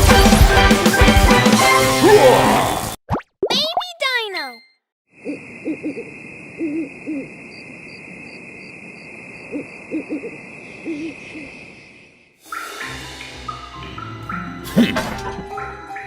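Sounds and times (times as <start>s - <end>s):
owl hooting: 5.2s - 8.7s, 9.4s - 11.7s
high-pitched night drone: 5.2s - 11.6s.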